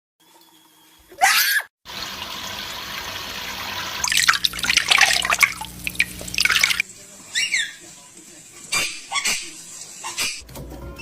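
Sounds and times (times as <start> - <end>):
running water splashing: 1.9 - 10.2.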